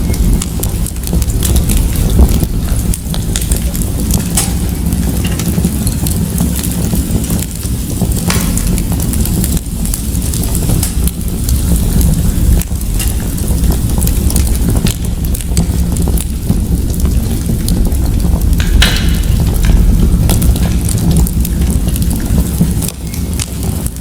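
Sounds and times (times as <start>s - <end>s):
low fire rumble: 0.0s - 24.0s
wood fire crackling: 0.0s - 24.0s.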